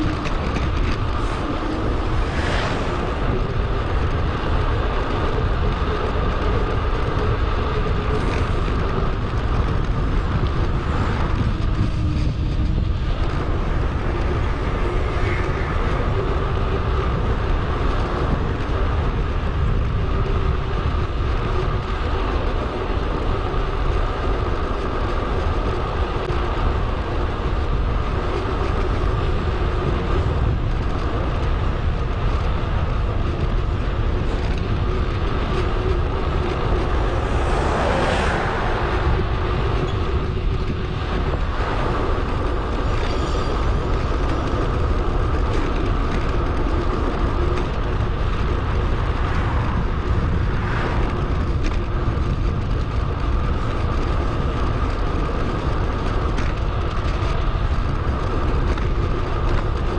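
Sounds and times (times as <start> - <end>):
loud whoosh: 0.0 - 4.7, 36.0 - 40.5
wind rushing: 0.0 - 18.5, 33.4 - 45.3, 46.8 - 53.3
bicycle tyre noise: 0.0 - 59.9.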